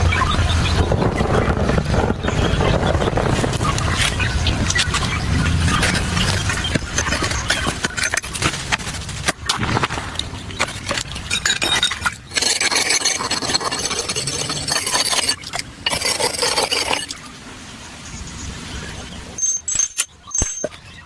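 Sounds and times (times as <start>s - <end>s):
rough scraping and rubbing: 1.2s - 17.2s.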